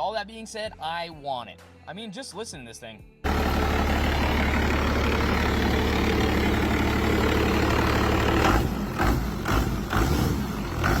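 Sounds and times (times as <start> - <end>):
diesel engine running: 3.2 - 11.0.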